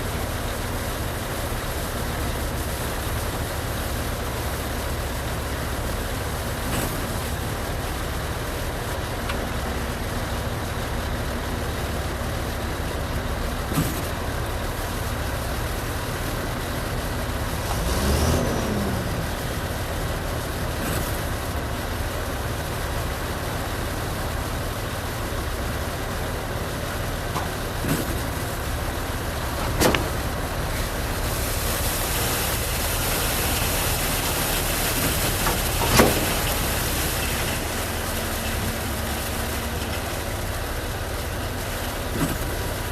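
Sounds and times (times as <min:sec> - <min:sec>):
truck engine running: 0:00.0 - 0:42.9
hiss: 0:27.7 - 0:42.9.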